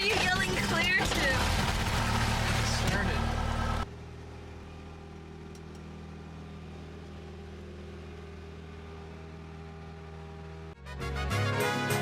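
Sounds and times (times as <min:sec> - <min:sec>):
small plane engine idling: 0:01.5 - 0:10.8.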